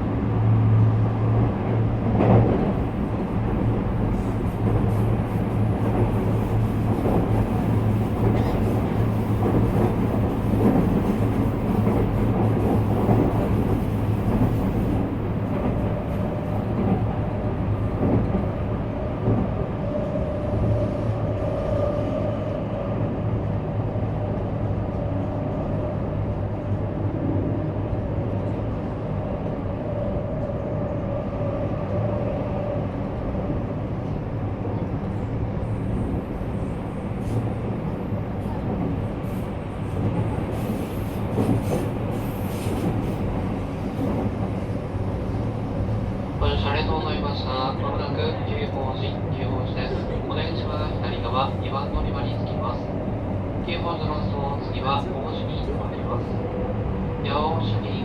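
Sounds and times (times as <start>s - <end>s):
train wheels on rails: 1.6s - 22.6s, 32.8s - 46.6s.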